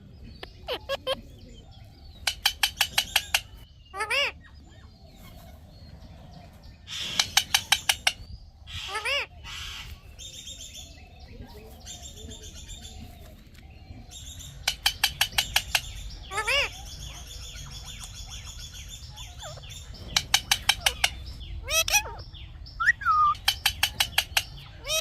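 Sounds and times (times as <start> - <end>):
parrot shrieking: 21.6 - 22.2.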